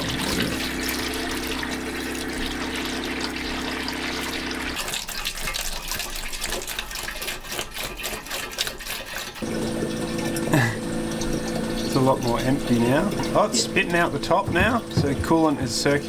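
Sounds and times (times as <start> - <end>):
electric pump humming: 0.0 - 4.8, 9.4 - 16.0
liquid gurgling and splashing: 0.0 - 16.0.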